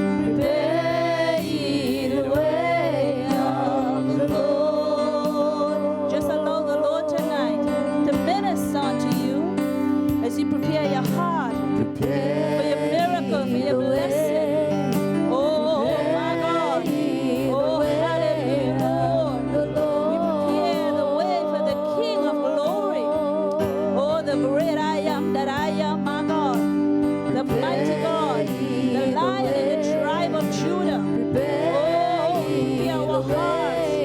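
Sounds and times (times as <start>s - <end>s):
voices singing gospel melody: 0.0s - 9.6s, 10.2s - 34.0s
sustained keyboard chords: 0.0s - 34.0s
band accompaniment: 7.2s - 13.3s.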